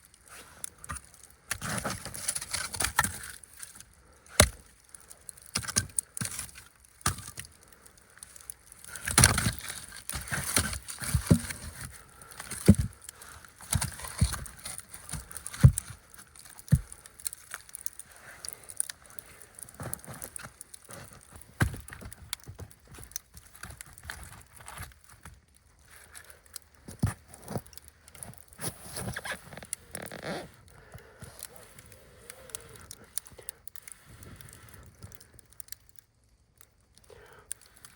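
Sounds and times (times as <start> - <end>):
wood knocking and cracking: 4.4 - 4.7, 5.3 - 7.6, 8.4 - 19.0, 19.6 - 25.4.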